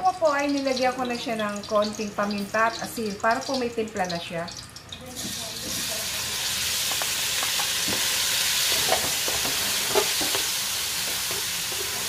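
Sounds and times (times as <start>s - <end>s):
tofu sizzling in hot oil: 0.1s - 12.0s
wooden spatula scraping a pan: 6.9s - 12.0s.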